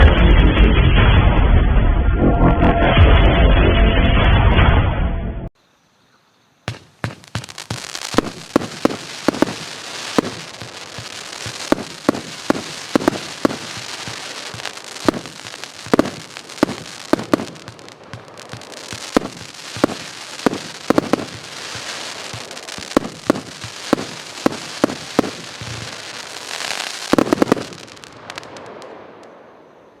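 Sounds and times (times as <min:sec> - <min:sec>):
firework crackling hiss: 0:06.7 - 0:29.4
firework shots: 0:06.7 - 0:29.5.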